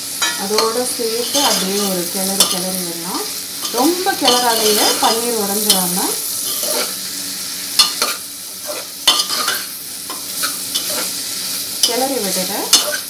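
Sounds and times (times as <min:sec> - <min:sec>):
food sizzling in a pot: 0:00.0 - 0:13.0
metal spoon clinking on pot: 0:00.2 - 0:02.7, 0:03.6 - 0:05.8, 0:09.1 - 0:09.6, 0:12.7 - 0:13.0.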